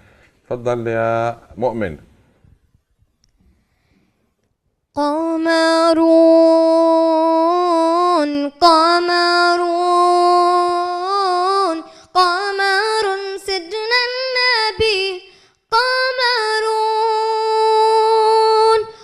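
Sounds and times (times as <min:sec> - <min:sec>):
boy singing unaccompanied: 0:05.0 - 0:19.0.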